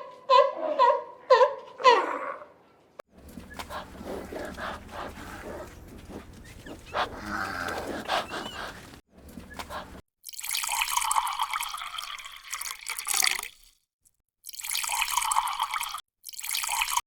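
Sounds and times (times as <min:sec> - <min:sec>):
water trickling and splashing: 0:03.2 - 0:13.8, 0:14.4 - 0:17.0.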